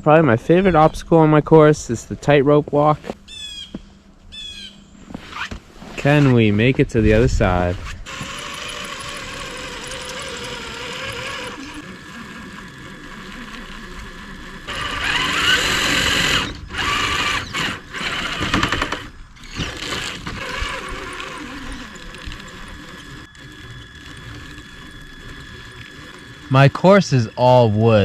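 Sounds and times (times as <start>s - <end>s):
toy car electric motor whining: 7.2s - 28.0s.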